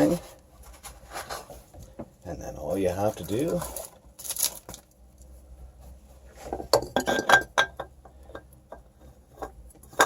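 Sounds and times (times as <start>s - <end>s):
oil filter clinking and tapping: 6.6s - 10.0s.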